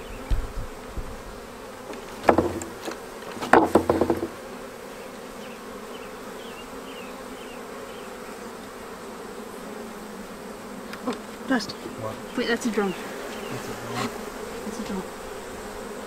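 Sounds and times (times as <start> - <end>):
bee swarm buzzing: 0.0 - 16.0.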